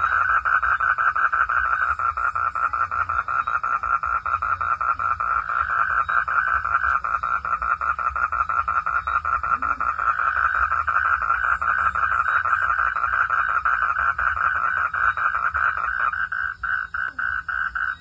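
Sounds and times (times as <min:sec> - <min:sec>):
frog trilling: 0:00.0 - 0:18.0.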